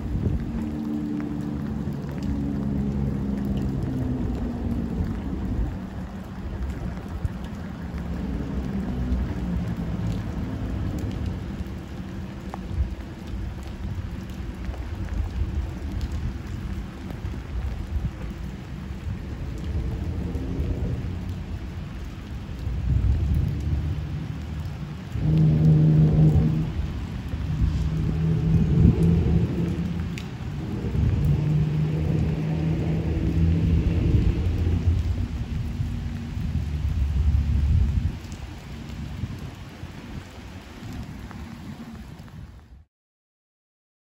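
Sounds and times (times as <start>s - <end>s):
low rumble: 0.0s - 39.6s
steady rain: 0.0s - 42.9s
train horn: 25.2s - 26.9s.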